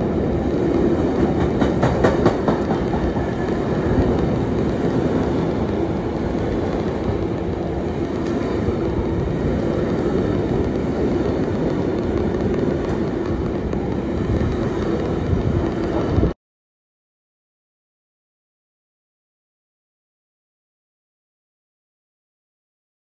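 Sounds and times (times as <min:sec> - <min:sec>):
freight train wheels rumbling: 0:00.0 - 0:16.4.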